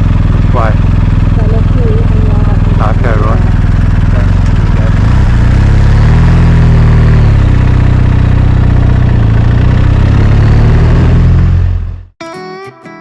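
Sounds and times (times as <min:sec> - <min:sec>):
motorcycle engine running: 0:00.0 - 0:12.2
acoustic guitar music: 0:12.2 - 0:13.0.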